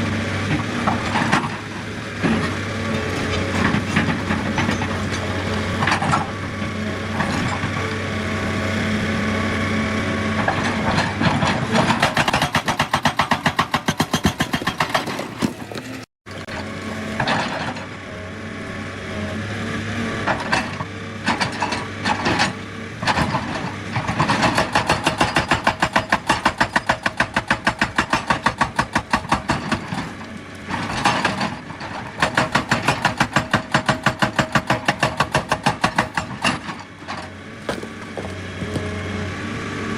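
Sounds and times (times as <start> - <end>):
excavator engine running: 0.0 - 39.9
hydraulic rock breaker hammering: 10.4 - 16.6, 20.2 - 39.2.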